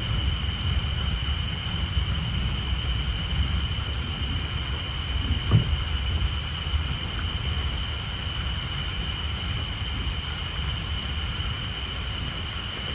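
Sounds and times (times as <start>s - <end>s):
thunder rumbling: 0.0s - 7.8s
rain on a tin roof: 0.0s - 12.9s
loud thud: 5.5s - 5.9s.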